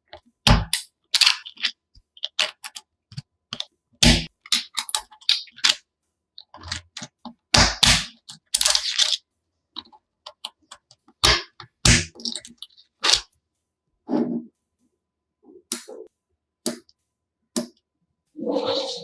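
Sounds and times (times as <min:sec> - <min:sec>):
plastic magnetic pieces clicking: 0:00.7 - 0:03.7.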